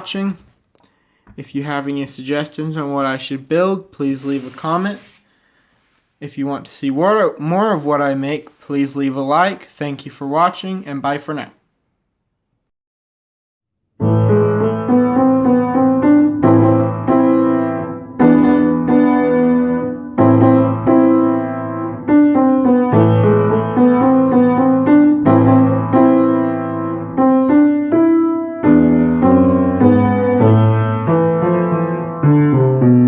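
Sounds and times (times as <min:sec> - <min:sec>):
piano music: 0:14.0 - 0:33.0.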